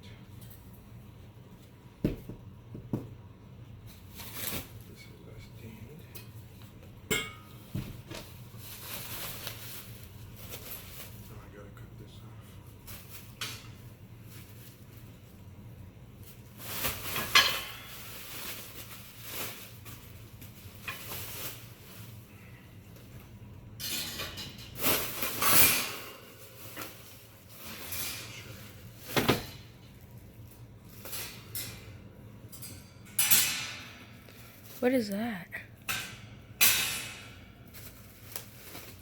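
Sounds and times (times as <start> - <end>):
metal cage parts clinking: 31.2 - 34.0.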